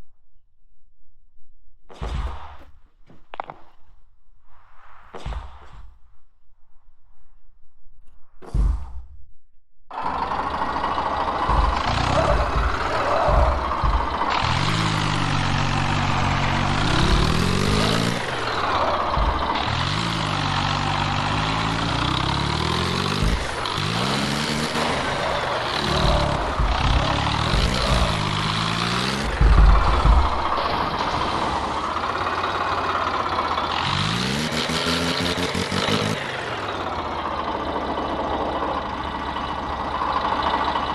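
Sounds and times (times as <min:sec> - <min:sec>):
loud low thud: 0:08.4 - 0:09.2, 0:10.5 - 0:31.9
tractor diesel engine revving: 0:09.9 - 0:40.9.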